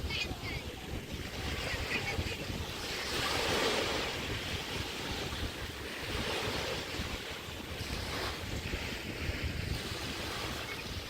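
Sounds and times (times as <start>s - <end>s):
waves washing up a beach: 0.0s - 11.0s
wind buffeting microphone: 0.0s - 11.0s.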